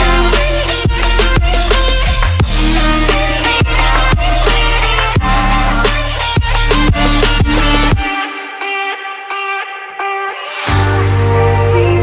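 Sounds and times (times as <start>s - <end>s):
held synth notes: 0.0s - 8.1s
kick drum beat: 0.8s - 2.8s, 3.6s - 5.8s, 6.4s - 8.1s.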